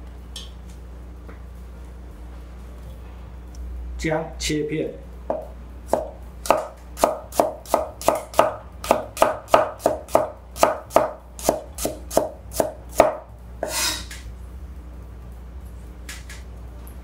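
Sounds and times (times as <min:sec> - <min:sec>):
cleaver knocking on cutting board: 0:05.3 - 0:11.6
blade scraping board: 0:13.6 - 0:14.2.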